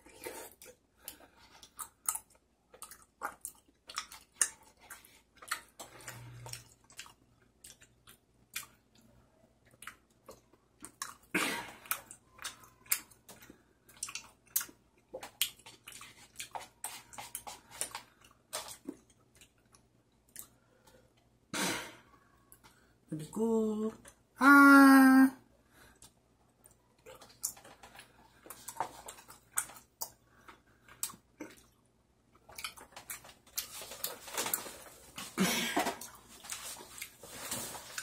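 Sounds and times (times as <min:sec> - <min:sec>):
wet chewing mouth sounds: 0:00.0 - 0:20.8
breathy sound: 0:24.4 - 0:26.0.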